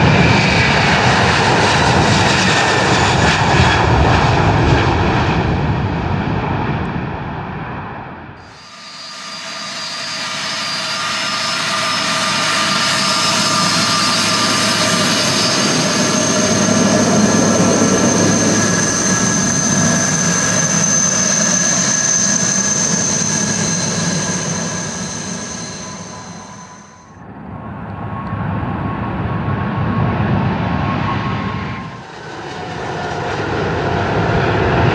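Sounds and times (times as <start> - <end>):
jet engines rumbling and whining: 0.0 - 34.9.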